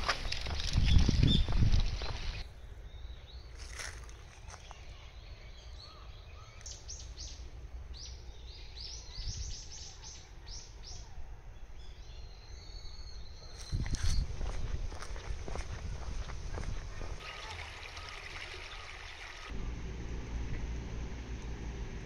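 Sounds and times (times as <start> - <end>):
wind rumble: 0.0 - 2.4, 13.5 - 17.2
birds chirping: 0.0 - 19.6.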